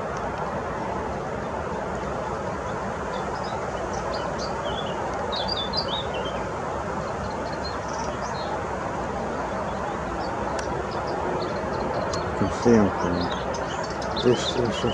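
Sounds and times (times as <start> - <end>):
songbirds chirping: 0.0 - 14.9
steady rushing background noise: 7.9 - 14.9.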